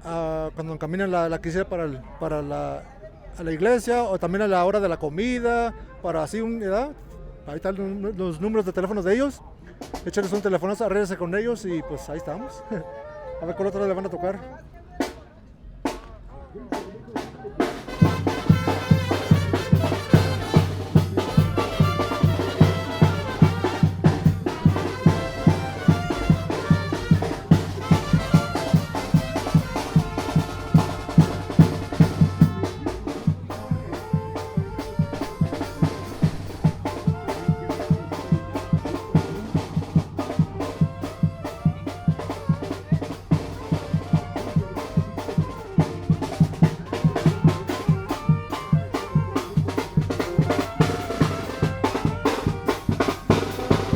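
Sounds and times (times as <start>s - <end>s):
snare drum: 16.8s - 53.9s
bass drum beat: 17.6s - 53.9s
brass horns: 17.6s - 53.9s.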